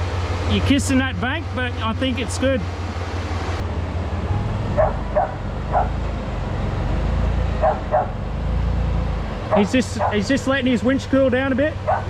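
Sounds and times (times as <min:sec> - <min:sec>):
engine idling with low hum: 0:00.0 - 0:12.0
dog barking: 0:04.8 - 0:06.0, 0:07.6 - 0:08.2, 0:09.5 - 0:10.3, 0:11.8 - 0:12.0.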